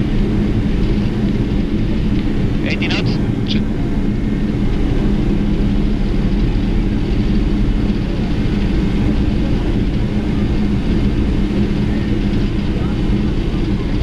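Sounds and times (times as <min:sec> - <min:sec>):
airflow and jet engine rumble: 0:00.0 - 0:14.0
constant low hum: 0:00.0 - 0:14.0.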